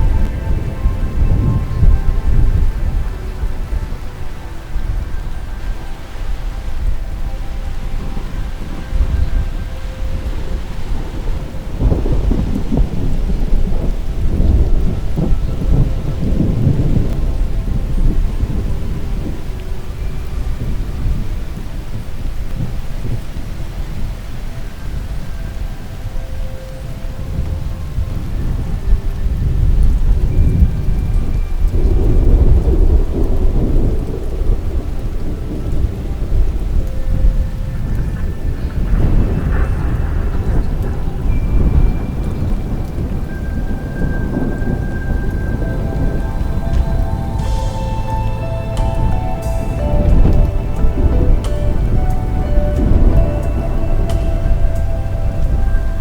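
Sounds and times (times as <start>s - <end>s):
rain falling: 0.0s - 56.0s
rolling thunder rumble: 0.0s - 56.0s.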